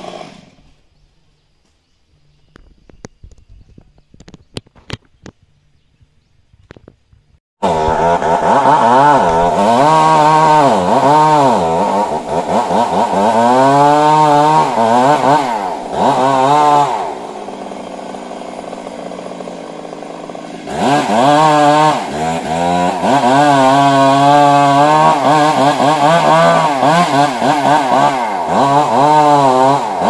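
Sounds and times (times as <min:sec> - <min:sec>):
chainsaw revving: 0:00.0 - 0:00.8, 0:07.6 - 0:30.0.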